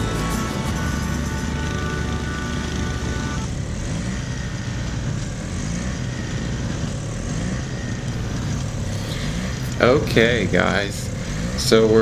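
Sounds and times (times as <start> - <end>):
music track: 0.0 - 4.5
snowblower engine running: 0.0 - 12.0.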